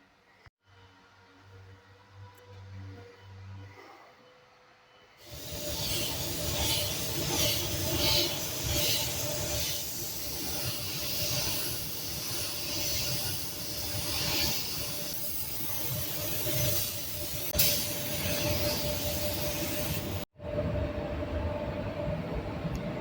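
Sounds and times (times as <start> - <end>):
compressed air hissing: 5.2 - 20.3.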